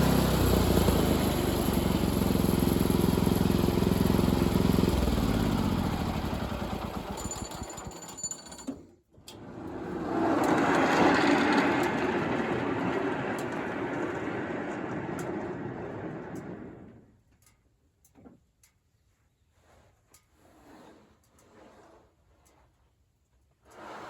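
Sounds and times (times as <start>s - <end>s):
engine running: 0.0s - 8.2s, 9.5s - 17.1s.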